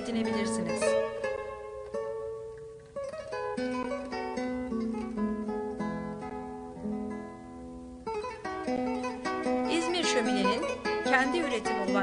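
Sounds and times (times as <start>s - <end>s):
acoustic guitar plucking and strumming: 0.0s - 12.0s.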